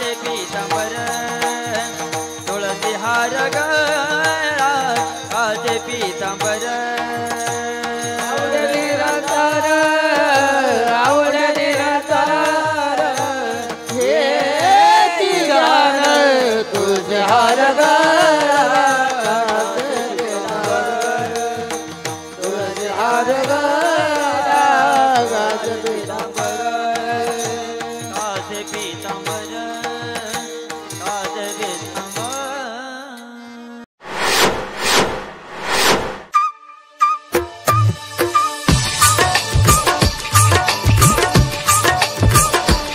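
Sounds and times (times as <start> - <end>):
drum strokes: 34.0 - 36.3, 37.4 - 42.9.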